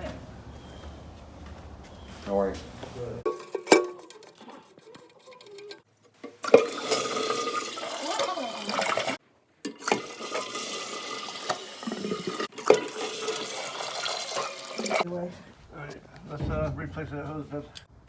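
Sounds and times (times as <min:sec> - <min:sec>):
toilet flushing: 0:03.3 - 0:15.0.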